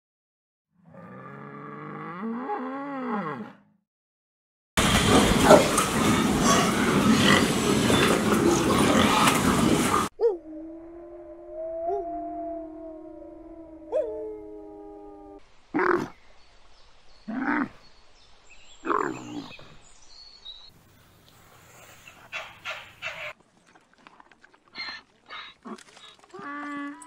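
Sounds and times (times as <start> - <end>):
wolf howling: 10.2 - 15.4.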